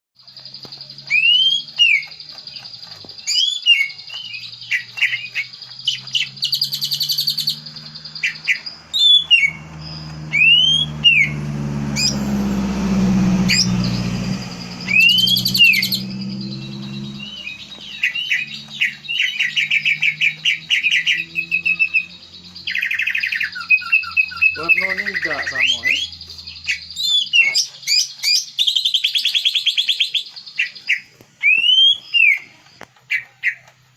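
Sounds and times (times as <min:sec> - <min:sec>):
bird whistling and trilling: 0:00.4 - 0:33.7
low drone: 0:06.8 - 0:27.0.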